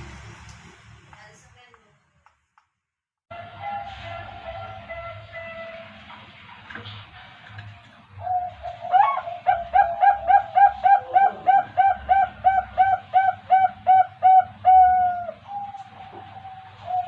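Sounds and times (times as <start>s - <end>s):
dove cooing: 8.2s - 17.0s.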